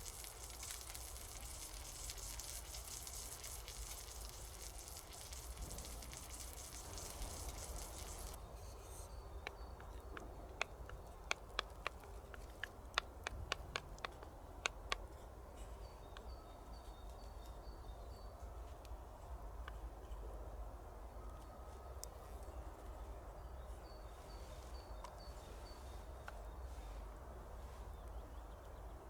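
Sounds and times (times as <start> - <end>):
food frying sizzle: 0.0 - 8.4.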